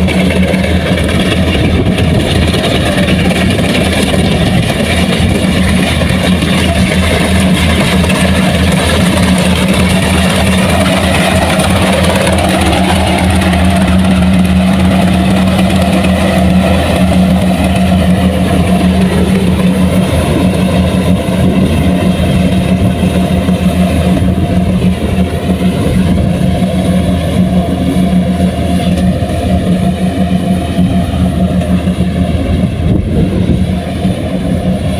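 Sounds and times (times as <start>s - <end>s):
farm machinery engine humming: 0.0s - 34.9s.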